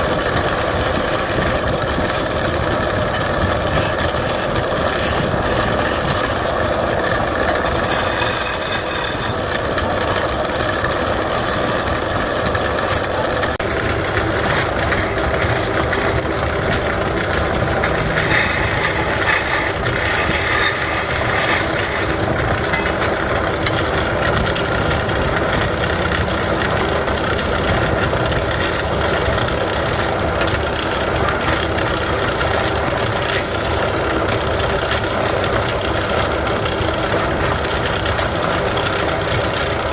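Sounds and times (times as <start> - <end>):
wood lathe running: 4.3 - 10.6, 13.6 - 39.9
tool cutting spinning wood: 4.8 - 10.3, 13.6 - 33.6.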